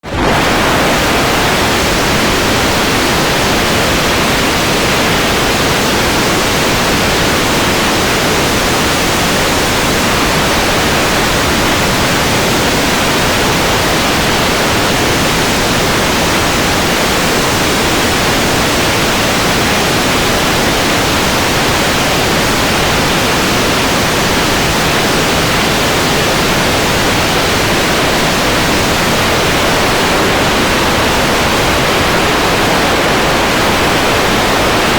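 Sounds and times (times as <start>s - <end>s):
loud rushing noise: 0.0s - 14.6s.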